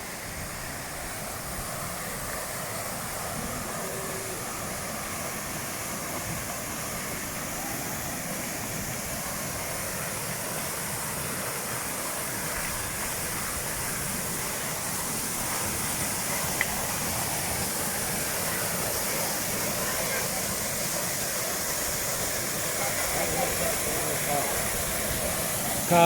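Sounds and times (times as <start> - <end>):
waterfall roaring: 0.0 - 26.0.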